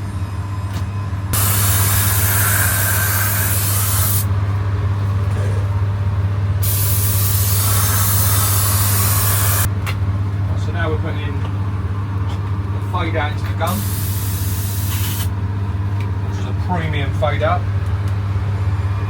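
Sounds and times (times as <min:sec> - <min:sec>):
steady low hum: 0:00.0 - 0:19.0
air spray gun hissing: 0:01.4 - 0:04.3, 0:06.6 - 0:09.7, 0:13.7 - 0:15.3.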